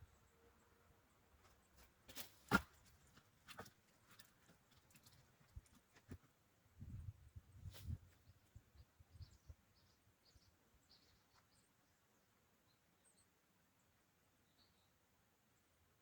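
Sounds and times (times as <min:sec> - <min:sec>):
faint small bird chirps: 0:06.9 - 0:15.8.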